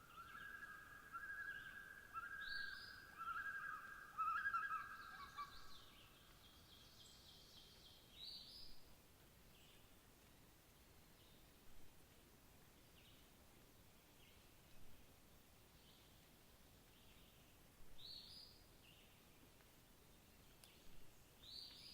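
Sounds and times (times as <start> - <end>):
birds warbling chattering song: 0.1 - 8.7.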